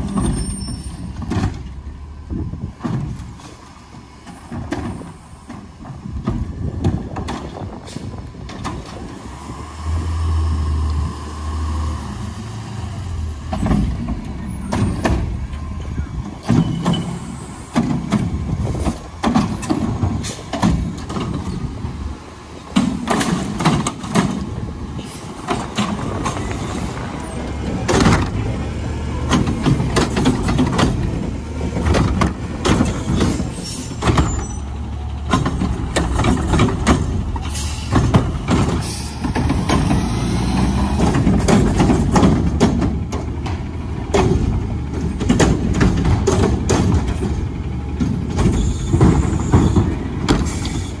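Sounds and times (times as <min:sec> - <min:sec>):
garbage truck engine rumble: 0:00.0 - 0:51.0
knocks and clatters: 0:13.4 - 0:21.7, 0:22.7 - 0:24.6, 0:27.5 - 0:28.5, 0:29.2 - 0:34.6, 0:35.2 - 0:50.8.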